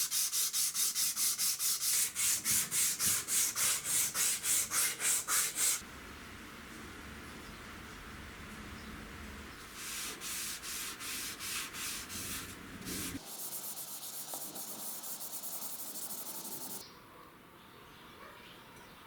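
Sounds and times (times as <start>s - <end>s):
sanding strokes: 0.0s - 5.8s, 9.7s - 16.8s.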